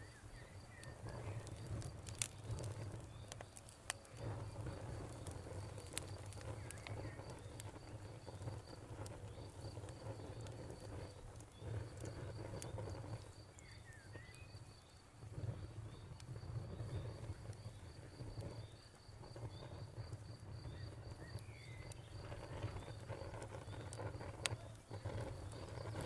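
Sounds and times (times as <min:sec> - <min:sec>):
campfire crackling: 0:00.0 - 0:26.0
cricket chirping: 0:00.0 - 0:26.0.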